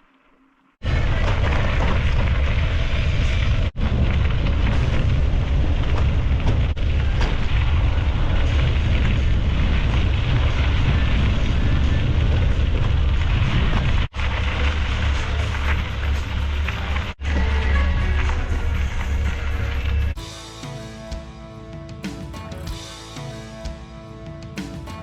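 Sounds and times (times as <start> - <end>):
wind buffeting microphone: 0.8 - 17.2.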